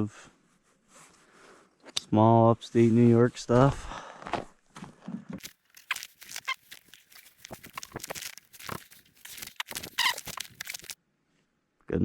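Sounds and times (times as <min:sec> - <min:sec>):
short squeaks: 0:05.4 - 0:11.0.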